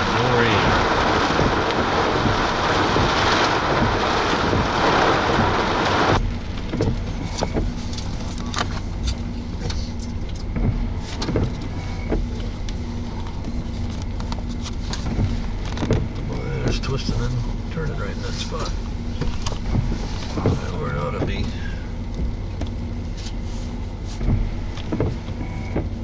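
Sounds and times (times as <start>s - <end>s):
rain and wind rushing: 0.0s - 9.6s, 10.2s - 23.0s, 23.8s - 26.0s
road and engine rumble: 0.0s - 26.0s.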